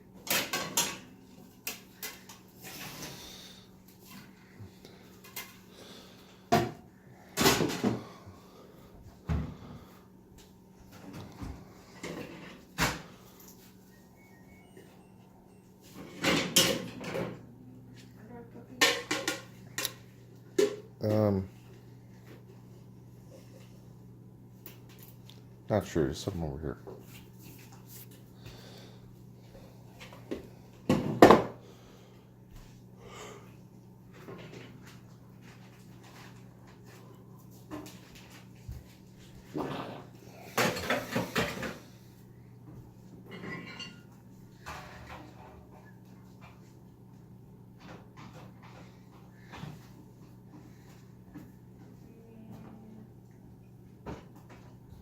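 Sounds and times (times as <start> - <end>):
low steady hum: 0.0 - 55.0
dishes clattering: 18.8 - 19.6, 43.2 - 45.6.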